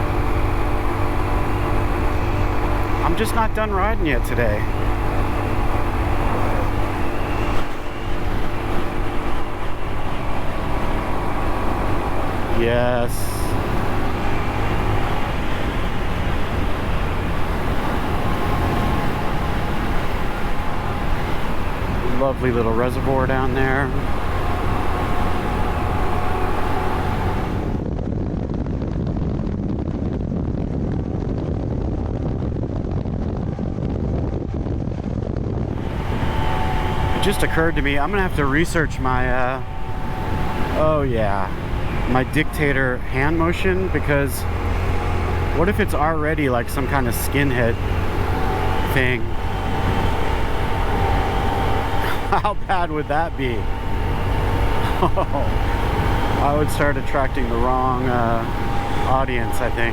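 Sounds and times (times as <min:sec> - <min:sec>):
wind noise on microphone: 0:23.8 - 0:43.0, 0:47.6 - 0:59.9
motorcycle engine running: 0:35.6 - 0:59.9.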